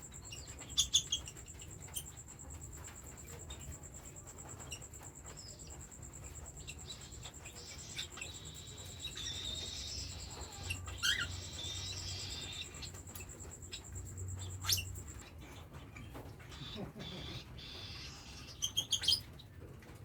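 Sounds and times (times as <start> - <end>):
baby cockatiels chirping: 0.2 - 2.1, 6.6 - 13.8, 14.4 - 19.4.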